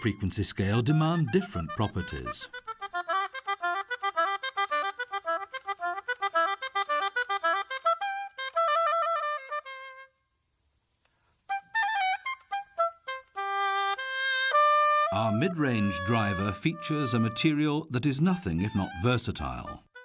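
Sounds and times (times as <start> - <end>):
melodic instrument playing: 0.7 - 8.6, 12.3 - 17.6.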